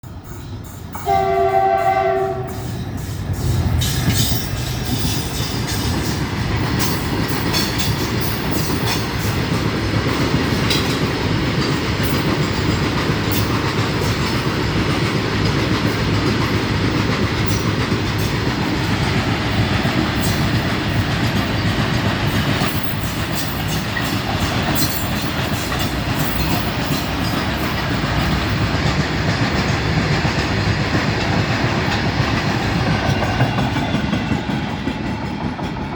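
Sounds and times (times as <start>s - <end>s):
train rumbling on rails: 0.0s - 35.9s
locomotive horn: 1.0s - 2.8s.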